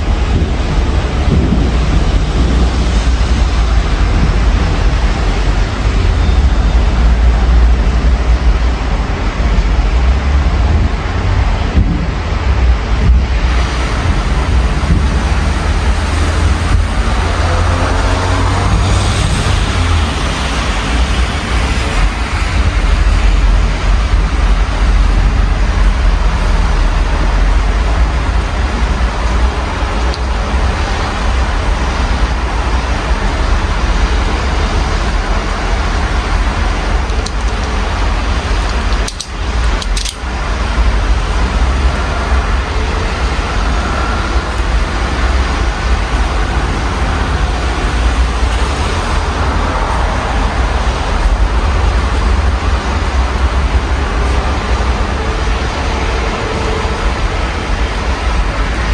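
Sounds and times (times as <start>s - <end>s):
deep low rumble: 0.0s - 39.8s
road traffic passing: 0.0s - 58.9s
steady rain: 0.0s - 58.9s.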